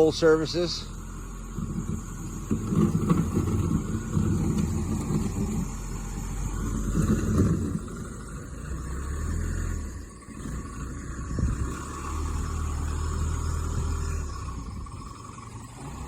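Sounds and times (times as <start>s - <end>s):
diesel engine working hard: 0.0s - 16.0s.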